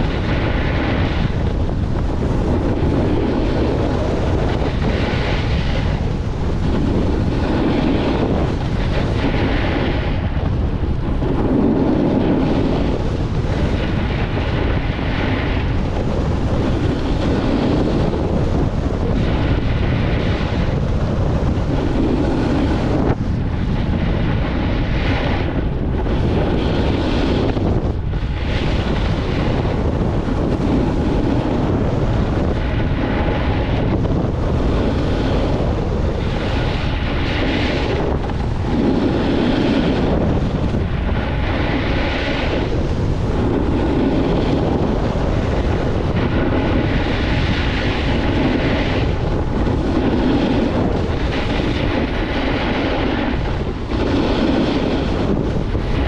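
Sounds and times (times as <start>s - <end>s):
wind buffeting microphone: 0.0s - 56.0s
skis swishing on snow: 34.7s - 40.3s, 41.1s - 49.0s, 51.2s - 56.0s.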